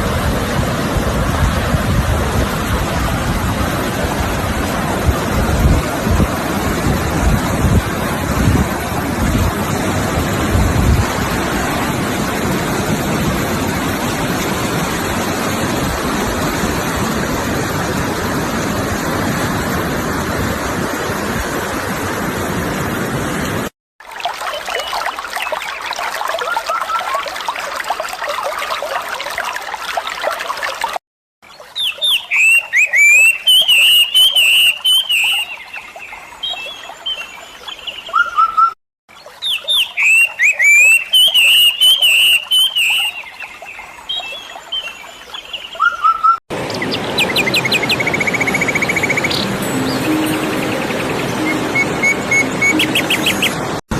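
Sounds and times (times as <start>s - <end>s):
water rushing: 0.0s - 38.3s, 39.1s - 53.9s
trickling stream: 0.0s - 53.9s
songbirds whistling: 31.7s - 38.8s, 39.4s - 43.5s, 44.1s - 53.6s.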